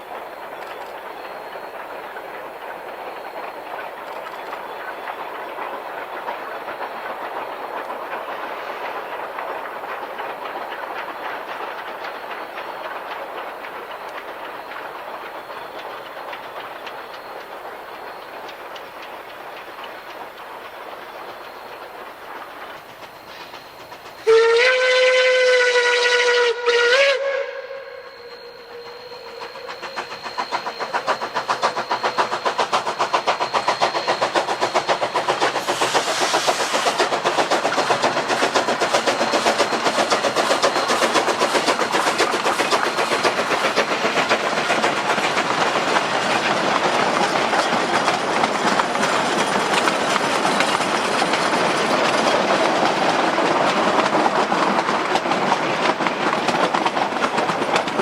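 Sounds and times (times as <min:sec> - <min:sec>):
steam locomotive exhaust chuffs: 0:00.0 - 0:58.0
steam whistle blasts: 0:24.2 - 0:32.0.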